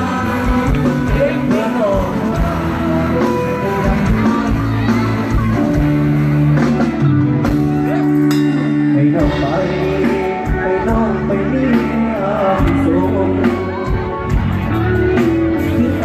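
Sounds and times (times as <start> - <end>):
electric guitar: 0.0 - 16.0
live band music: 0.0 - 16.0
steady drum beat: 0.0 - 16.0.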